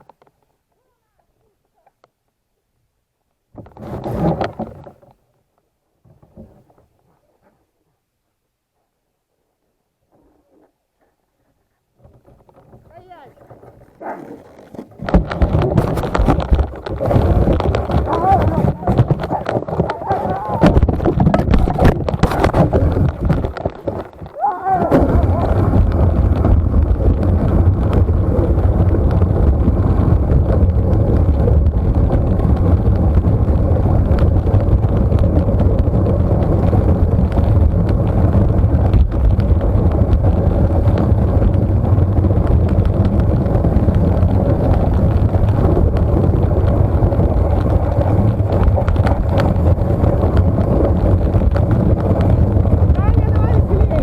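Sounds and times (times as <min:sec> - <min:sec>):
moving vehicle rumble: 0:12.7 - 0:54.0
wind buffeting microphone: 0:12.7 - 0:54.0.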